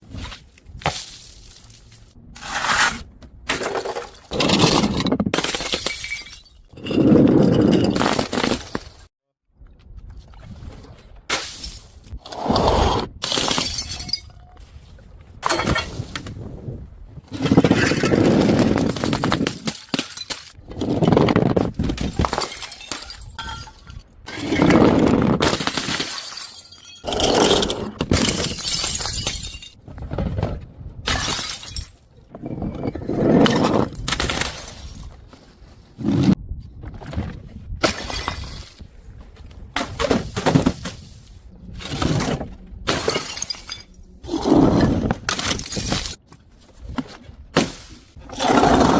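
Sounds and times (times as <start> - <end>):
glass bottles shattering: 3.6 - 8.4, 13.2 - 14.5, 22.1 - 24.7, 25.5 - 29.8, 31.1 - 32.1, 42.9 - 44.0, 45.3 - 46.2.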